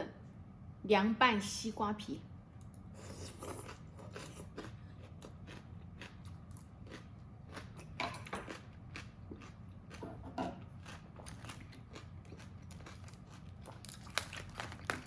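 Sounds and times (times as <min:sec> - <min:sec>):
steady low hum: 0:00.0 - 0:15.0
crunchy biting and chewing: 0:03.0 - 0:15.0.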